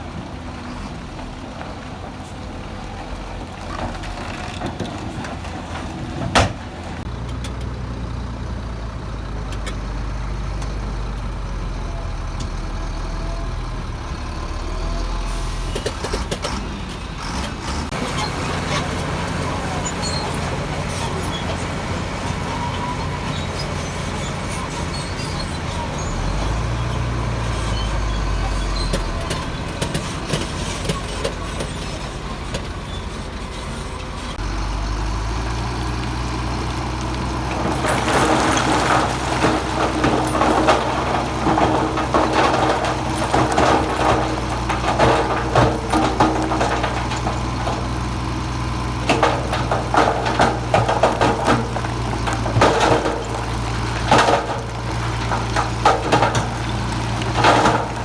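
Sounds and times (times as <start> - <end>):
heavy diesel engine running: 0.0 - 58.0
rock crunching and clattering: 36.9 - 58.0.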